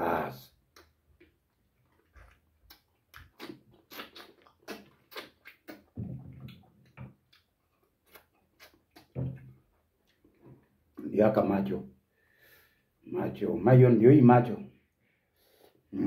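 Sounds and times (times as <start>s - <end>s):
wet chewing and lip-smacking: 0.7s - 11.0s.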